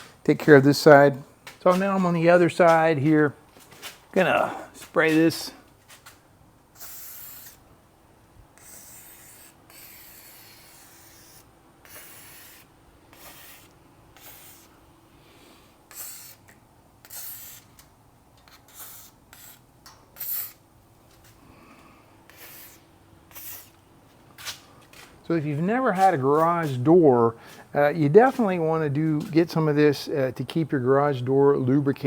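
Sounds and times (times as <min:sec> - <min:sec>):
aerosol can spraying: 0:06.8 - 0:07.6, 0:08.6 - 0:14.7, 0:15.9 - 0:16.5, 0:22.3 - 0:23.7.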